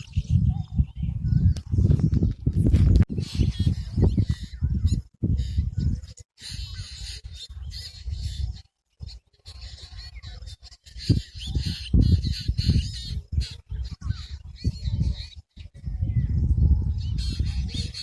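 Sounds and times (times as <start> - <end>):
low rumble in gusts: 0.0 - 6.2, 11.1 - 18.0
birds chirping: 0.0 - 18.0.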